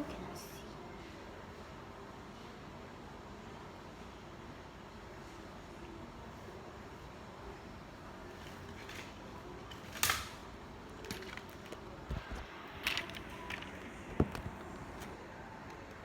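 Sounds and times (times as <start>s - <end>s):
objects clicking and knocking: 8.3s - 14.8s.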